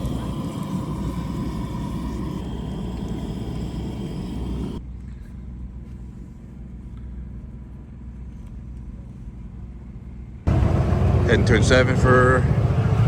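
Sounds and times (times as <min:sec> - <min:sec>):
loud steady tones: 0:00.0 - 0:04.8, 0:10.5 - 0:13.0
low engine rumble: 0:00.0 - 0:13.0.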